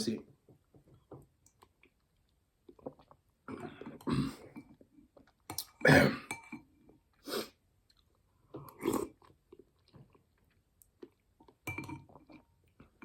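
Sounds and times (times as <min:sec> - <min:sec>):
person chewing: 0:07.8 - 0:13.0.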